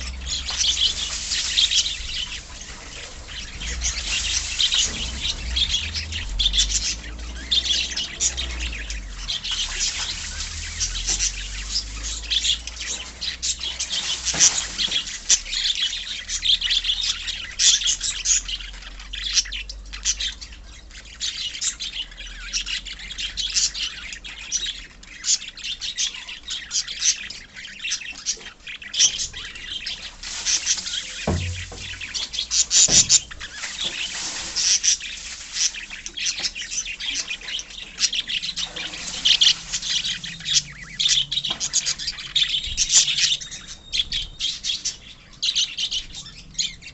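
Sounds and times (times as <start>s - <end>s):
parrots chirping: 0.0s - 46.9s
dull knocks: 31.2s - 33.5s.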